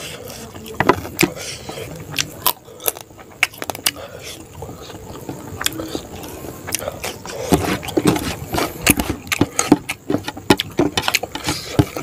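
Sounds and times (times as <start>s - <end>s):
crunching raw cucumber: 0.9s - 4.1s.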